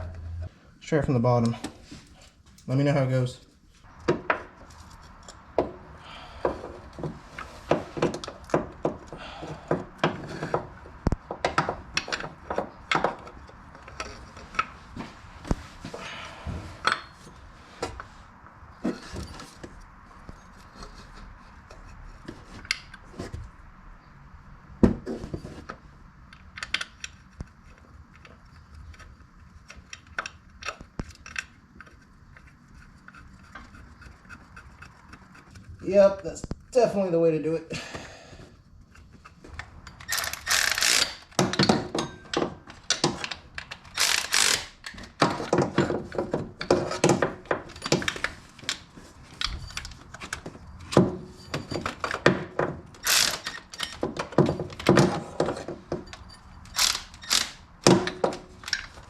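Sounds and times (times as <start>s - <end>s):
metallic clinks and knocks: 39.7s - 48.4s.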